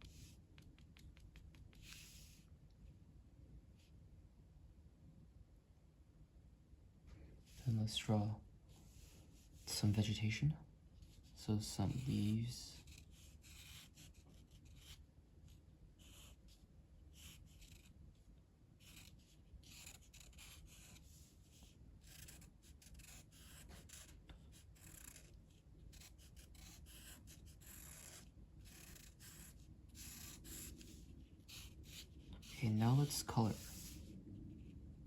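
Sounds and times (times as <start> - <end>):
pen scratching on paper: 0.0 - 2.4, 11.0 - 18.0, 18.8 - 34.0
low steady hum: 0.0 - 35.0.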